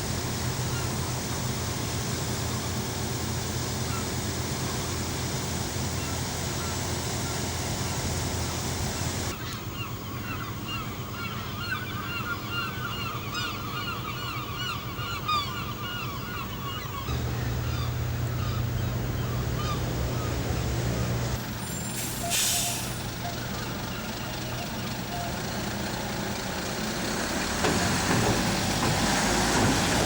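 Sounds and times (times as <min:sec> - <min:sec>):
low background rumble: 0:04.6 - 0:21.6
flock of birds calling: 0:05.8 - 0:30.0
low engine hum: 0:12.4 - 0:30.0
short hiss: 0:21.4 - 0:23.2.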